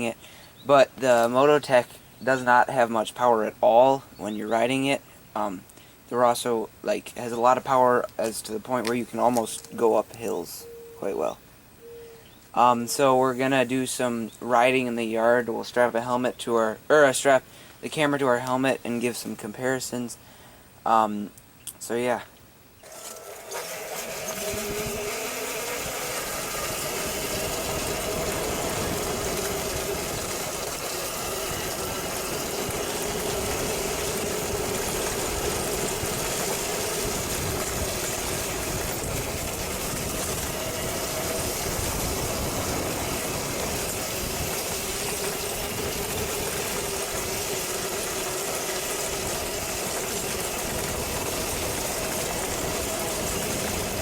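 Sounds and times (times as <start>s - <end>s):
electric motor whining: 22.8s - 54.0s
wind rushing on microphone: 25.8s - 47.5s.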